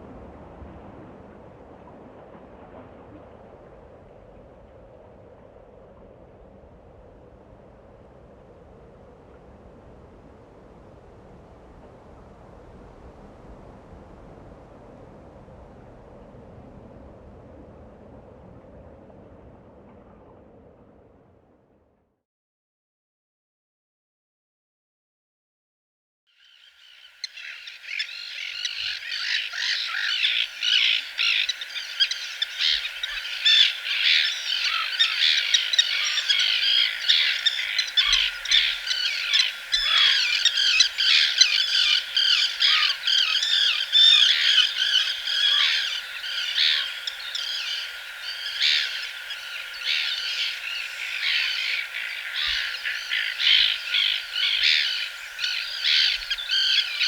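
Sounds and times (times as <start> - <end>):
birds chirping and trilling: 26.4 - 57.0.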